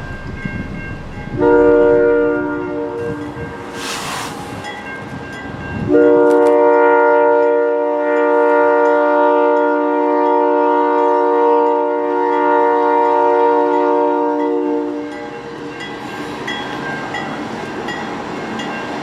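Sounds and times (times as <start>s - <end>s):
train rumble: 0.0s - 11.8s
locomotive air horn chord: 1.3s - 4.6s, 5.9s - 15.0s.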